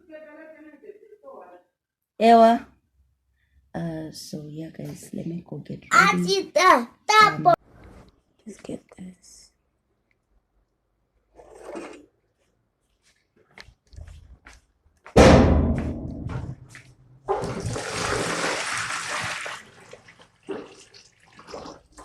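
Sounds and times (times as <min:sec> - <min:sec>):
toilet flushing: 0:17.3 - 0:22.0.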